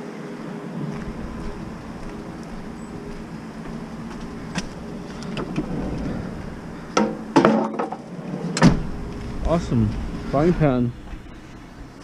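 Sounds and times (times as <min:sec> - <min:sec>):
vehicle engine idling: 0:00.8 - 0:07.4, 0:08.7 - 0:12.0
knocks and clatter: 0:06.9 - 0:08.9.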